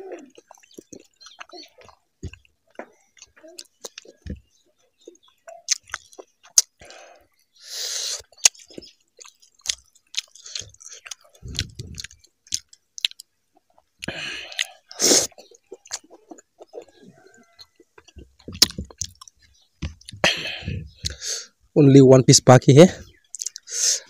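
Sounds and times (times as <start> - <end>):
wet chewing and lip smacking: 0.1 - 21.3, 23.1 - 23.8.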